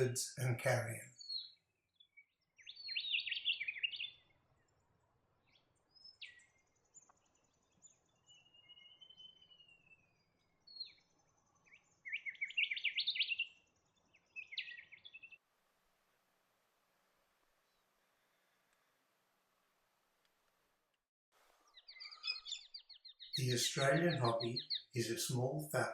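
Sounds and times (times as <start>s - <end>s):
faint high bird twittering: 0.0s - 4.3s, 5.5s - 15.4s, 21.7s - 25.9s.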